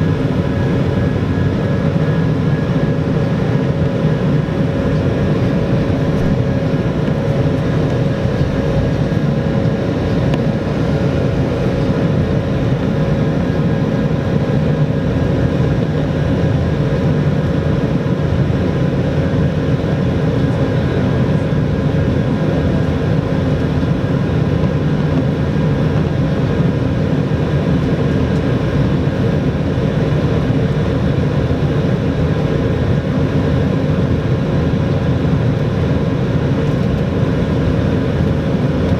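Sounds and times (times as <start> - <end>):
airflow rushing: 0.0 - 14.4
jet engines humming: 0.0 - 38.9.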